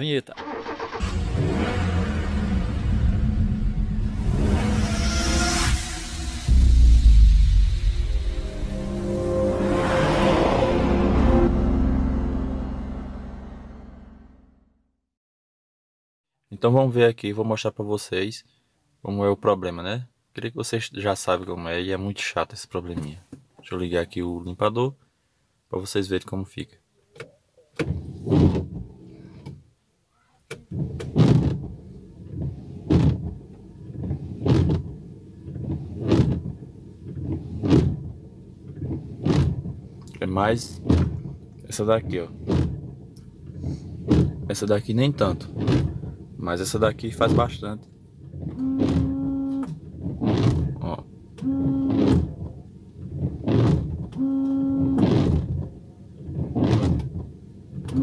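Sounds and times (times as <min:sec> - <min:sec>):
windshield wipers sweeping: 0:27.8 - 0:29.3, 0:30.5 - 0:58.0
wiper blades juddering on glass: 0:30.7 - 0:39.9, 0:42.1 - 0:44.5, 0:45.2 - 0:46.4
wiper motor running: 0:48.4 - 0:50.8.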